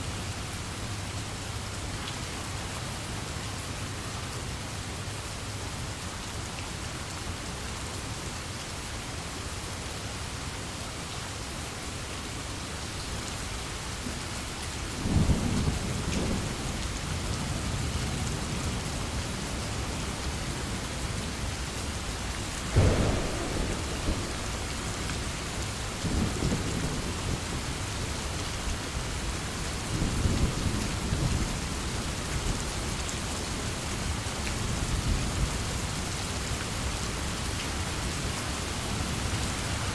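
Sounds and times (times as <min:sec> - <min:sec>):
heavy rain: 0:00.0 - 0:39.9
rolling thunder: 0:22.6 - 0:27.9
sharp thunderclap: 0:22.7 - 0:27.5.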